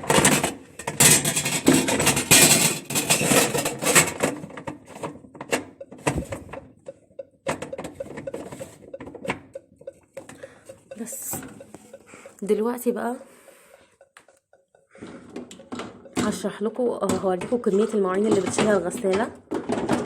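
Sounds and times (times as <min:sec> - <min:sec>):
plastic filter parts clattering: 0:00.0 - 0:06.7, 0:15.0 - 0:16.4, 0:17.0 - 0:20.0.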